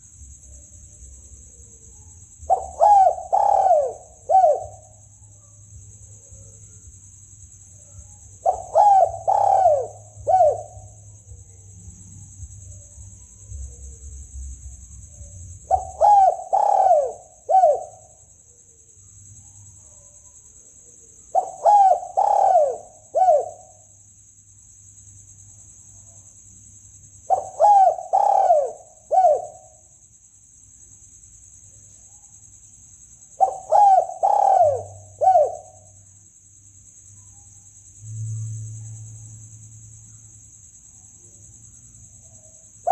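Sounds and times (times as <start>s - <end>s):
dove cooing: 2.4s - 4.9s, 8.4s - 11.0s, 15.6s - 18.2s, 21.3s - 23.8s, 27.3s - 29.7s, 33.4s - 35.8s.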